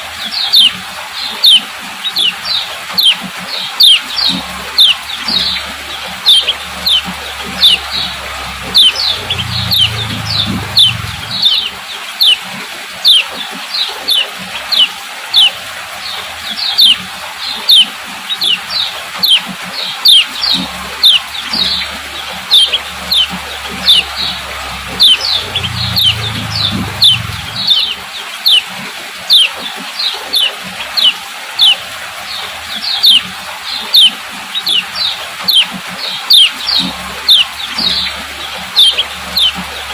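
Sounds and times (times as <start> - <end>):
bird high chip calls: 1.4 - 12.4, 14.1 - 15.6, 16.7 - 17.0, 17.6 - 28.7, 29.3 - 29.6, 30.3 - 31.8, 32.9 - 33.2, 33.8 - 39.9
low hum: 4.1 - 11.9, 20.4 - 28.1.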